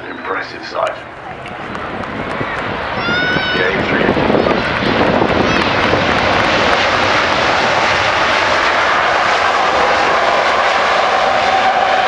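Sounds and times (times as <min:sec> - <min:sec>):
jet engine whine: 0:00.0 - 0:12.0
jet engines roaring: 0:00.0 - 0:12.0.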